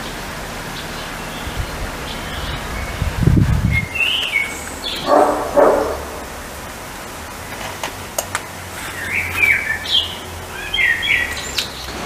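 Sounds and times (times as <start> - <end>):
birds chirping: 0.0 - 12.0
low rumble: 1.3 - 7.5.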